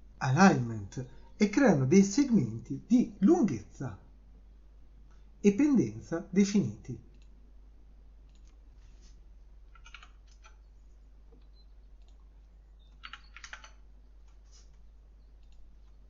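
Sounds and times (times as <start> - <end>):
low steady hum: 0.0 - 16.0
computer keyboard clicking: 8.3 - 8.6, 9.7 - 10.6, 12.9 - 14.4.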